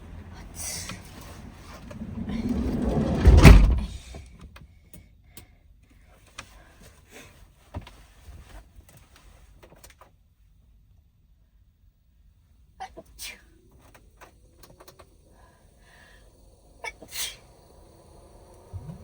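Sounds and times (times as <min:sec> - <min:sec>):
van sliding door slamming: 0:01.0 - 0:04.1.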